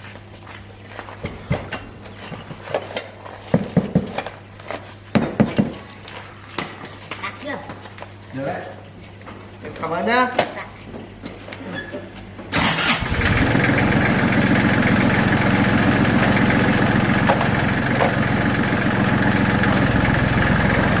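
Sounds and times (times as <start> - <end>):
diesel engine starting and running: 12.5 - 21.0.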